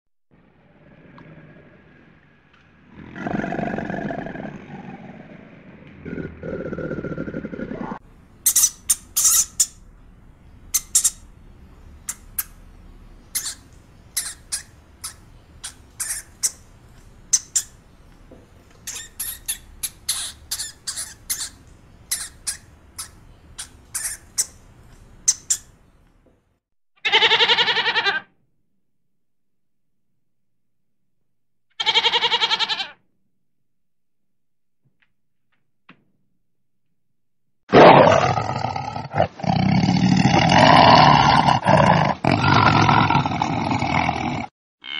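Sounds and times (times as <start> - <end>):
low animal growl: 0.3 - 8.0, 37.7 - 44.9
hamster squeaking: 8.5 - 9.8, 18.9 - 24.6
goat bleating: 27.0 - 28.3, 31.8 - 33.0.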